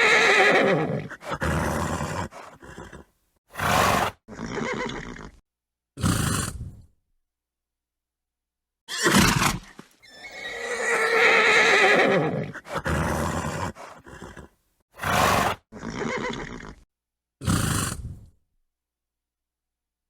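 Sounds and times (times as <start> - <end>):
horse neighing: 0.0 - 5.4, 8.9 - 16.8.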